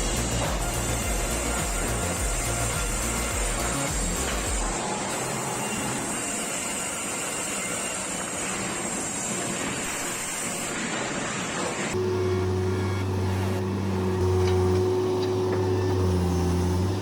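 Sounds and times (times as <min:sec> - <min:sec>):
engine running steadily: 0:12.0 - 0:17.0.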